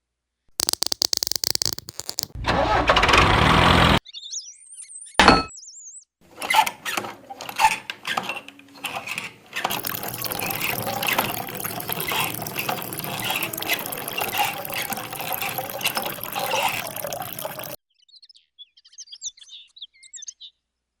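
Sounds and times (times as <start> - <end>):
water splashing from a pump: 9.7 - 17.8.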